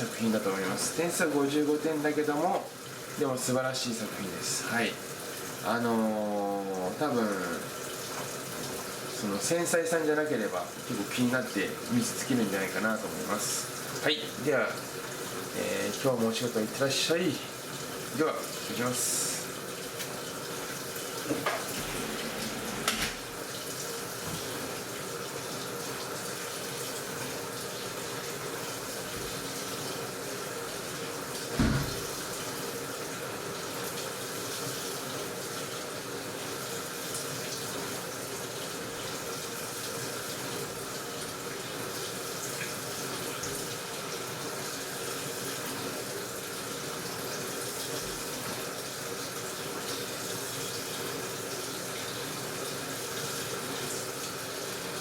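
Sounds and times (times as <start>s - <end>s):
water rushing into washing machine: 0.0s - 55.0s
loud thump: 31.6s - 32.1s.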